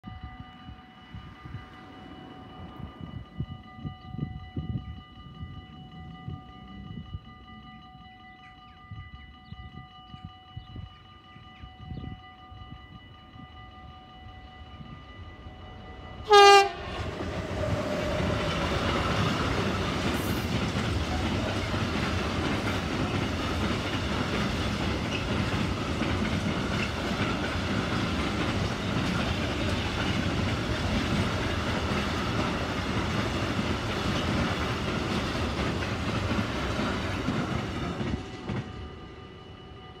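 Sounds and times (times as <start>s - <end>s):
train wheels rumbling on rails: 14.3s - 40.0s
locomotive horn blast: 16.2s - 17.2s.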